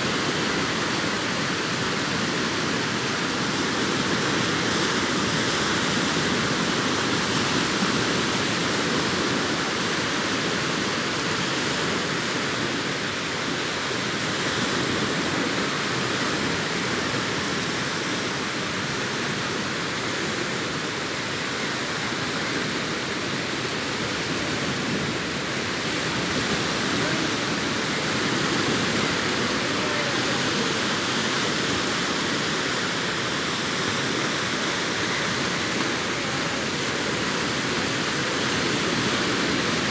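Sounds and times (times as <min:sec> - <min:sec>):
sea surf breaking: 0:21.8 - 0:39.9.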